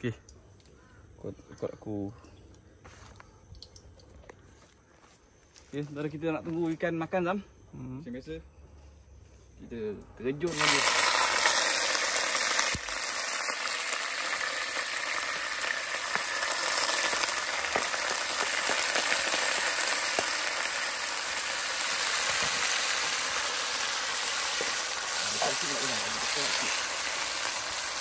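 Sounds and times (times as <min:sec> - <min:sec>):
onions sizzling in oil: 0:10.5 - 0:28.0.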